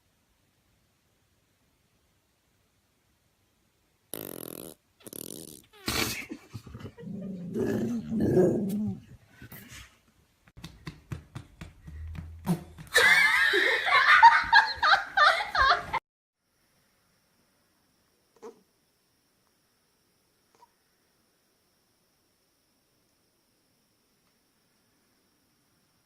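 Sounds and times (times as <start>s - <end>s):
laughter: 5.9s - 7.5s, 12.9s - 16.0s
dog growling: 6.7s - 9.2s.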